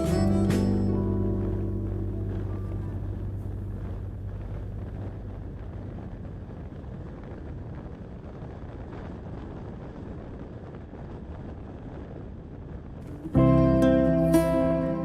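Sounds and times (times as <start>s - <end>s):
background music: 0.0s - 5.1s, 13.1s - 15.0s
vehicle road and wind noise: 0.0s - 15.0s
wind rumbling on microphone: 0.0s - 15.0s.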